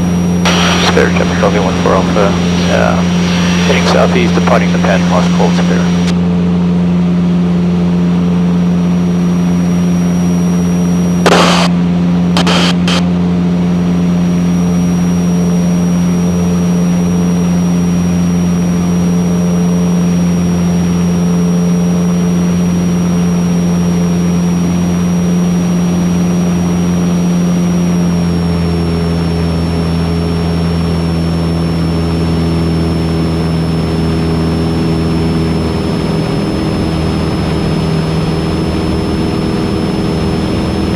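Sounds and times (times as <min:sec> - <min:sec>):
propeller plane engine droning: 0:00.0 - 0:40.9
sharp clicks: 0:11.3 - 0:11.7.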